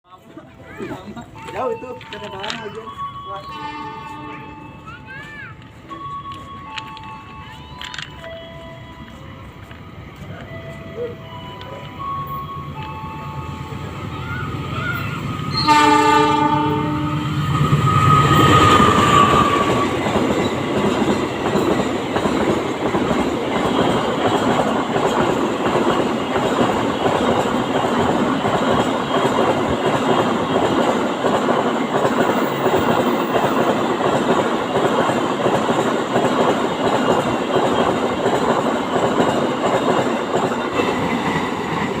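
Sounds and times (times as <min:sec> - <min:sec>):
train horn blast: 0:03.5 - 0:04.6, 0:15.5 - 0:20.1
train wheels clattering: 0:15.6 - 0:42.0.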